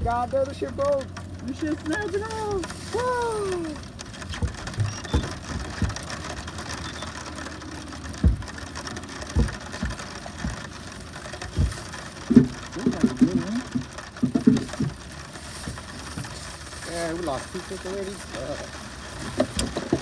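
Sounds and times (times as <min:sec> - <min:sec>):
rain on boat and water: 0:00.0 - 0:20.0
dull knocks against boat: 0:04.2 - 0:06.1, 0:08.2 - 0:08.7, 0:09.3 - 0:10.7.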